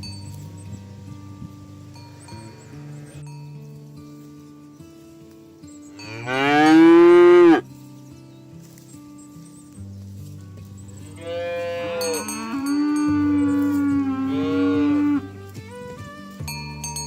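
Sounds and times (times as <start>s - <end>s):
music with plucked notes: 0.0s - 17.0s
cow mooing: 2.0s - 3.2s, 6.0s - 7.6s, 11.2s - 15.3s.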